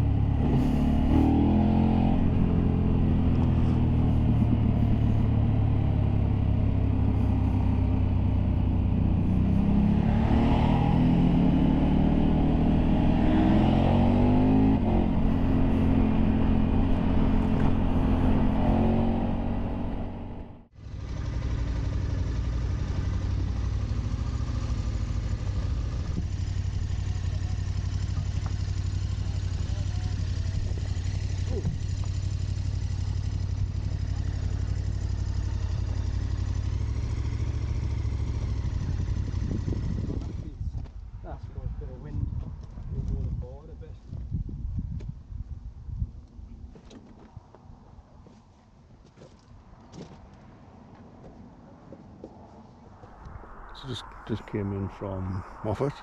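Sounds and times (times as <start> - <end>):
motorcycle engine accelerating: 0.0 - 40.9
wind on microphone: 14.1 - 20.4, 38.5 - 46.7, 52.4 - 56.0.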